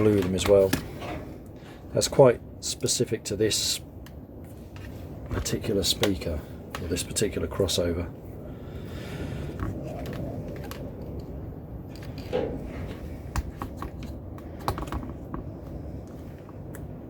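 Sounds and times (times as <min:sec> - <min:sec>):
strong wind rumble: 0:04.2 - 0:17.0.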